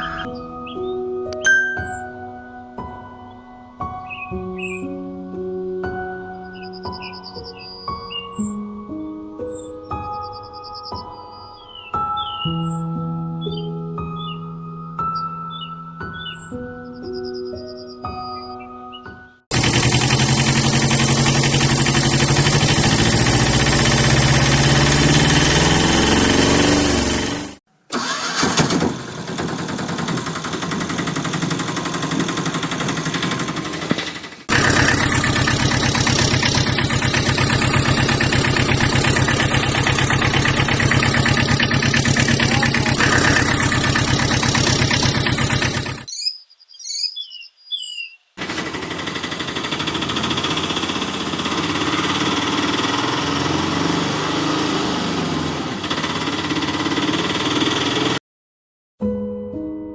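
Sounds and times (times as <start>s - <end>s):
engine running: 19.5s - 46.1s, 48.4s - 58.2s.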